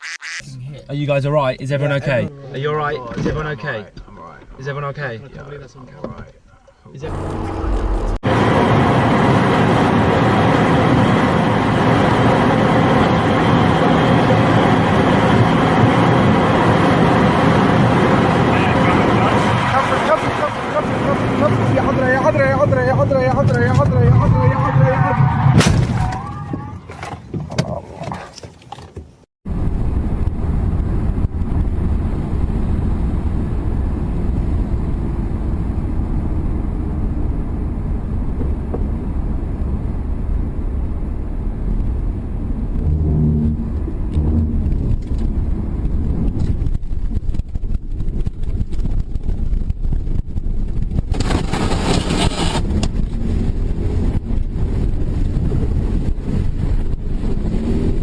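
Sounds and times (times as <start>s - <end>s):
vehicle rumble: 0.0s - 58.0s
wind on microphone: 29.5s - 58.0s.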